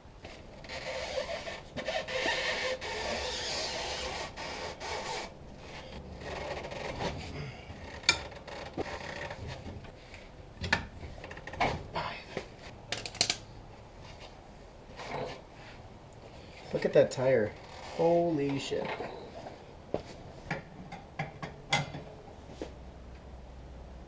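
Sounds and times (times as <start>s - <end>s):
rough scraping and rubbing: 0.2s - 9.7s, 17.6s - 19.6s.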